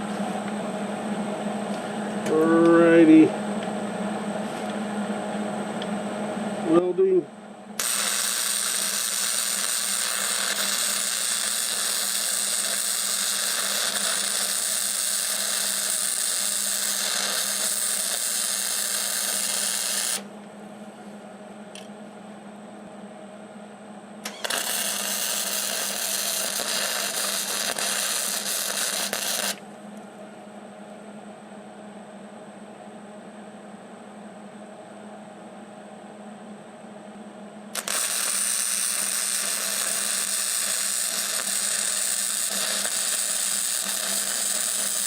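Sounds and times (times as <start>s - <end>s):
steady low hum: 0.0s - 45.0s
welder arc crackling and hissing: 6.6s - 7.2s, 7.8s - 20.3s, 24.2s - 29.6s, 37.7s - 45.0s.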